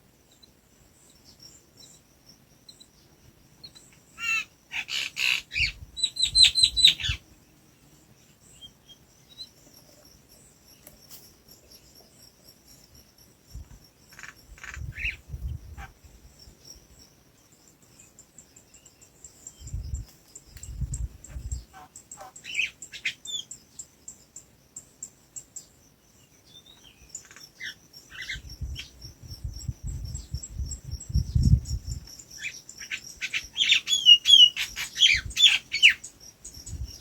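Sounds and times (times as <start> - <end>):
bird chirping rapidly: 4.2 - 7.2, 29.9 - 37.0.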